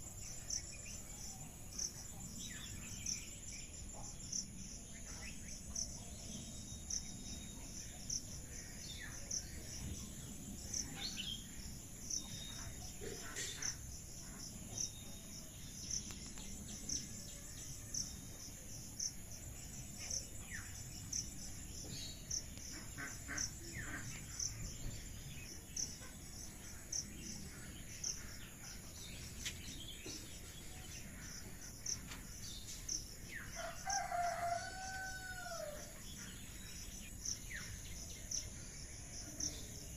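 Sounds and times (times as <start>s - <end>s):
insects chirping: 0.0s - 39.9s
rooster crowing: 33.6s - 35.9s.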